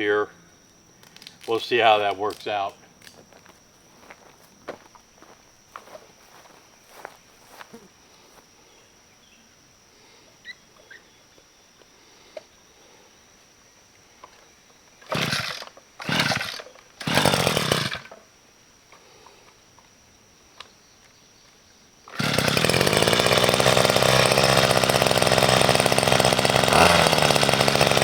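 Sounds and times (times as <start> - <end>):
chainsaw running: 15.0 - 18.2, 22.1 - 28.0.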